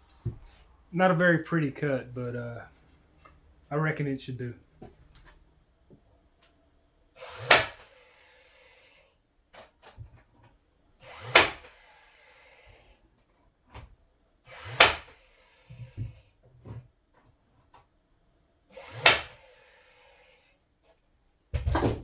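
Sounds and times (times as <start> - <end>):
sharp knocks with rattle: 21.5 - 22.0.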